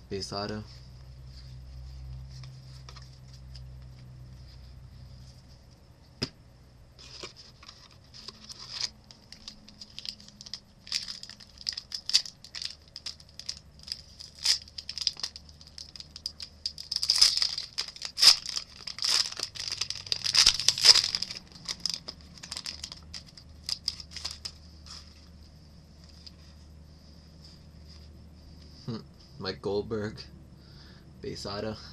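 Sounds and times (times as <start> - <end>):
wrapper tearing and crinkling: 7.0 - 25.1.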